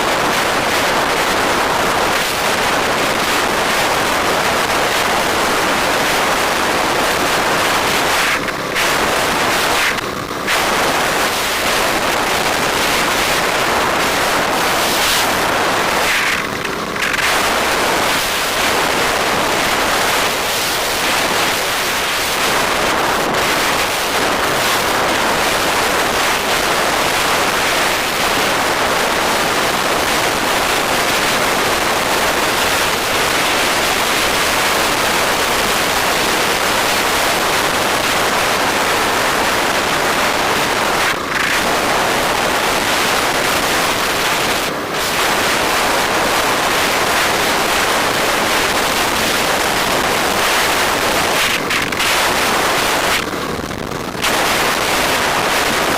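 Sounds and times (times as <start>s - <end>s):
wind rush on microphone: 0.0s - 55.9s.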